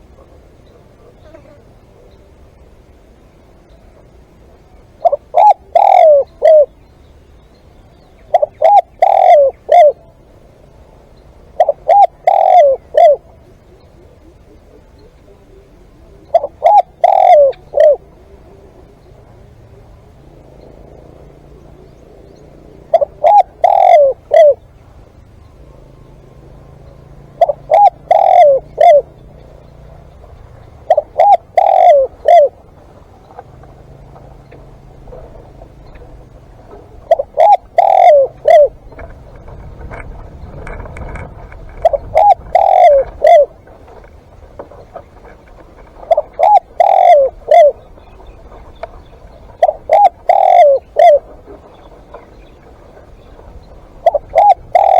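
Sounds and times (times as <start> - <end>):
dove cooing: 0.0 - 54.9.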